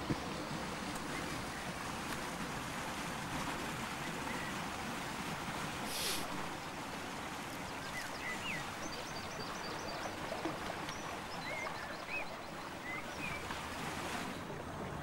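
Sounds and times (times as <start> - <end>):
steady rushing hiss: 5.9 - 6.3.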